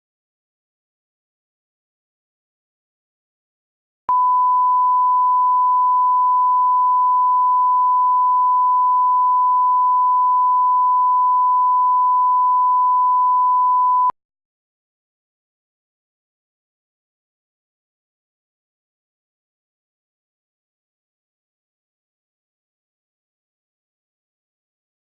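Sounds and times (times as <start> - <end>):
pure test tone beep: 4.1 - 14.2.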